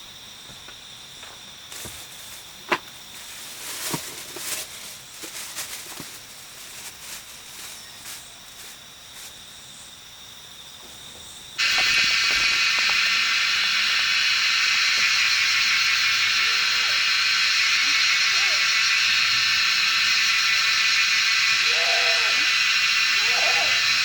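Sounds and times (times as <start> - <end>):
faint insect tone: 0.0 - 24.0
rustling steps through undergrowth: 1.3 - 9.8
loud hissing buzz: 11.6 - 24.0.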